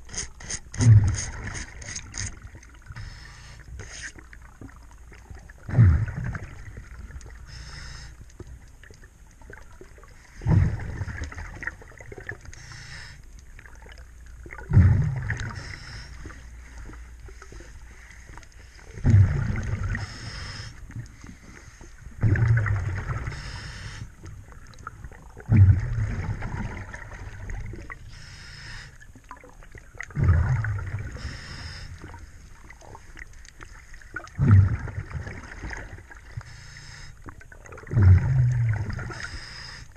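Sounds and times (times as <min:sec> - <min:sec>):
regulator inhalation hiss: 0:03.0 - 0:04.1, 0:07.4 - 0:08.2, 0:12.6 - 0:13.2, 0:15.5 - 0:16.4, 0:20.0 - 0:20.8, 0:23.3 - 0:24.1, 0:28.1 - 0:29.0, 0:31.2 - 0:32.0, 0:36.4 - 0:37.2, 0:39.1 - 0:39.9
bubbles from diver exhaling: 0:05.6 - 0:07.0, 0:10.4 - 0:12.3, 0:14.5 - 0:15.6, 0:19.0 - 0:20.0, 0:22.2 - 0:23.3, 0:25.2 - 0:28.0, 0:29.3 - 0:31.2, 0:34.2 - 0:36.0, 0:37.6 - 0:39.2.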